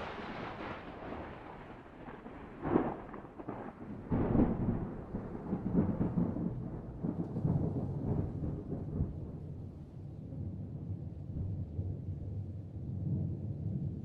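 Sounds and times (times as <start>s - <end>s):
rolling thunder: 0.0s - 9.8s.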